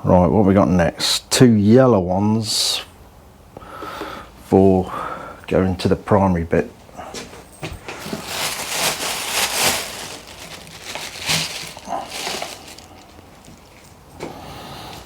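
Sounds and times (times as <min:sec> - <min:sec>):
electrical wires rustling and scraping: 0:07.1 - 0:15.0.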